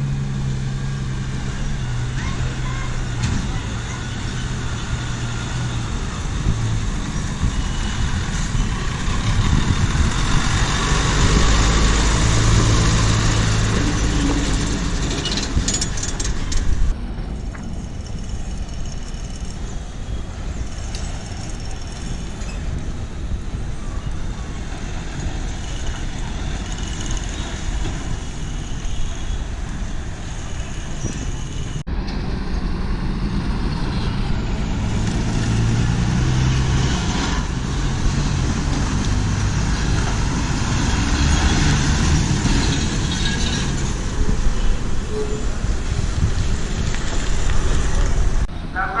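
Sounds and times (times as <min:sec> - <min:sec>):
heavy vehicle engine running: 0:00.0 - 0:29.6
traffic noise: 0:00.0 - 0:49.0.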